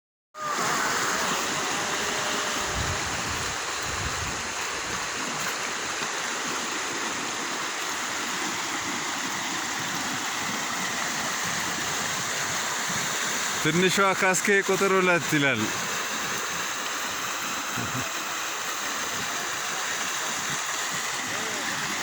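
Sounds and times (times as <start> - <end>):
flowing water rushing: 0.4 - 22.0.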